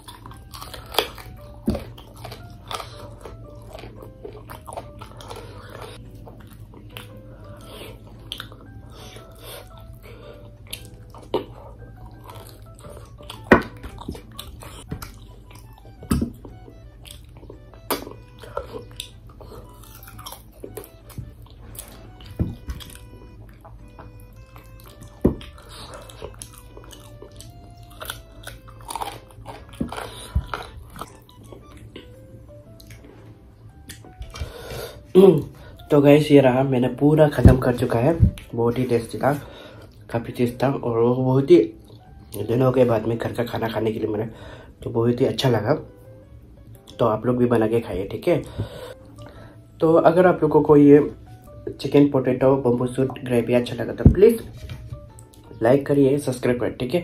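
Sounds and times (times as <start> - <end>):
wet chewing and biting: 0.0 - 35.1
faint background music: 0.0 - 57.0.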